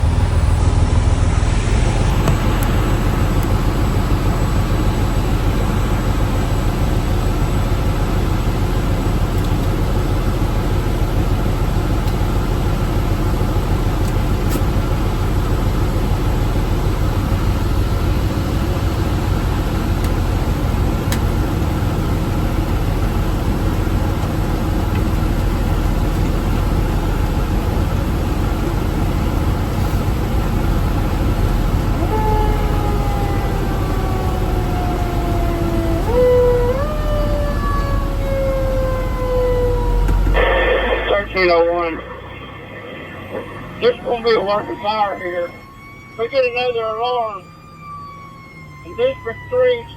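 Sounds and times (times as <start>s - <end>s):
fire engine rumbling: 0.0s - 49.9s.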